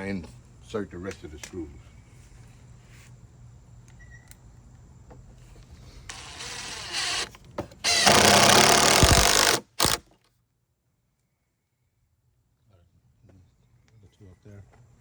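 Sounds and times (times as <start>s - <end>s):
impact driver driving screws into wood: 6.1s - 10.1s.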